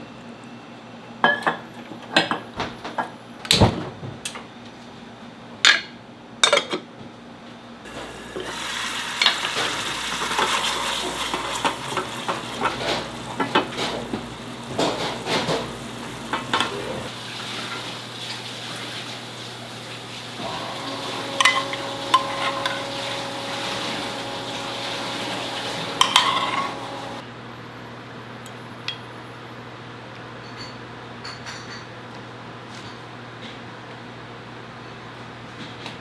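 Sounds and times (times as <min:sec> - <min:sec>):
food sizzling in hot pan: 0:07.9 - 0:27.2
clinks and scraping of stirring: 0:09.2 - 0:17.7, 0:21.2 - 0:27.2.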